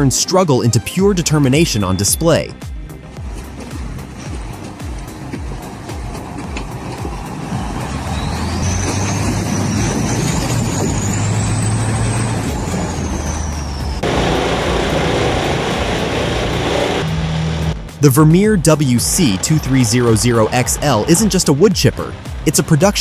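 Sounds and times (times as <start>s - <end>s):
dense machine noise: 2.8s - 23.0s
truck engine running hard: 2.9s - 23.0s
thin high whine: 9.0s - 17.7s.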